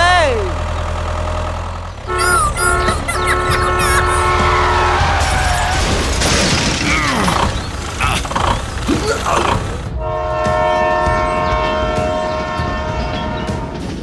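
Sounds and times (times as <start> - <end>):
gliding squeaks: 2.0 - 9.8
clatter: 5.2 - 10.0
multi-tone horn chord: 10.0 - 13.8.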